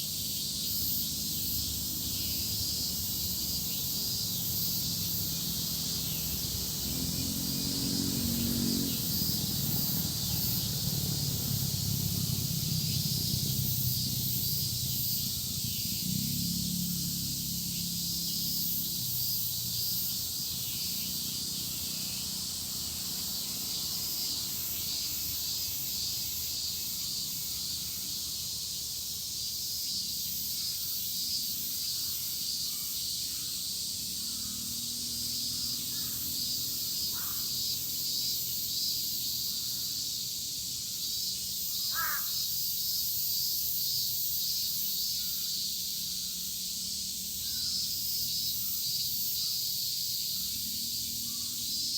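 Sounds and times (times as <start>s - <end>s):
cicadas shrilling: 0.0s - 51.9s
crow cawing: 37.1s - 37.5s, 41.9s - 42.4s.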